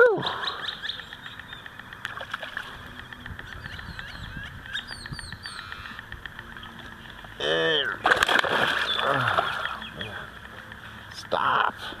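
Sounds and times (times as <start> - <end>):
small birds chirping: 0.2 - 11.8
faint clicks: 0.6 - 7.4, 9.0 - 11.3.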